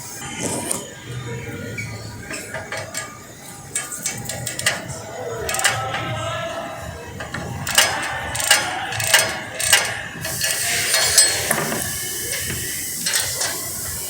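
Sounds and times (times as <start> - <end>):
ratchet clicking: 2.2 - 14.0
steady hiss: 7.2 - 14.0.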